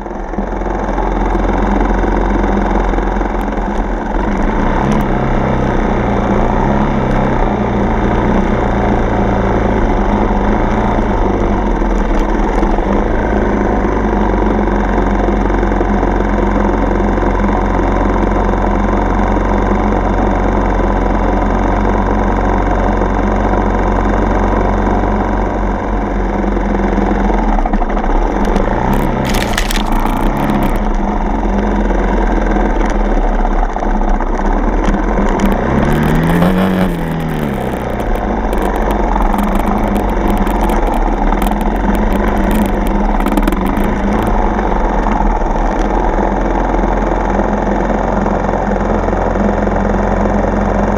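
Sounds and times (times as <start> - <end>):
knocks and scrapes: 28.4 - 31.0, 34.8 - 45.2
dirt bike engine revving: 28.4 - 31.6, 34.9 - 46.2.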